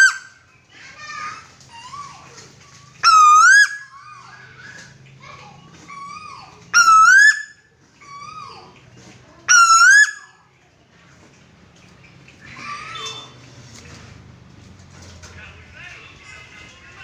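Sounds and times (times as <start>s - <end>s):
bird calling loudly: 0.0s - 0.4s, 2.9s - 5.0s, 6.1s - 7.7s, 9.5s - 10.4s.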